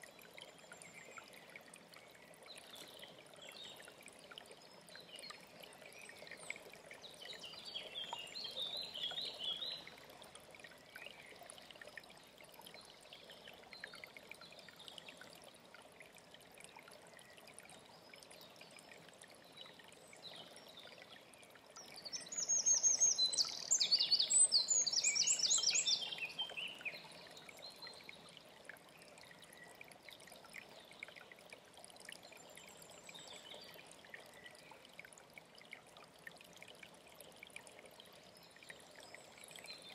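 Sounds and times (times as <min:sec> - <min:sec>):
mountain stream running: 0:00.0 - 0:39.9
songbirds singing: 0:04.6 - 0:10.0, 0:20.2 - 0:28.2.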